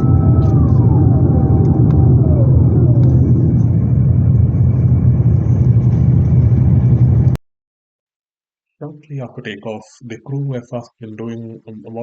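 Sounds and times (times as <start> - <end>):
high whining tones sliding down: 0.0 - 7.1
airplane cabin engine rumble: 0.0 - 7.4.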